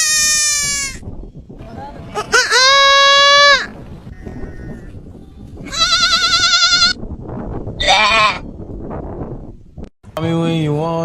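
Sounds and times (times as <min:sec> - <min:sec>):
livestock bleating: 0:05.6 - 0:07.0, 0:07.8 - 0:08.4.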